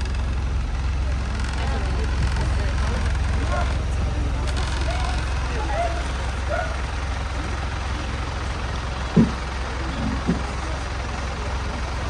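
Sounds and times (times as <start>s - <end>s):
bus engine humming: 0.0s - 12.0s
short thumps: 9.1s - 10.6s.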